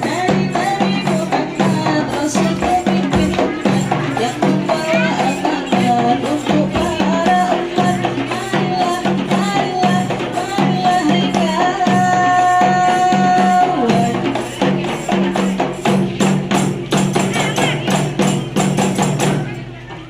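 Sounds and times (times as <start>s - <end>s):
frame drums beating: 0.0s - 20.0s.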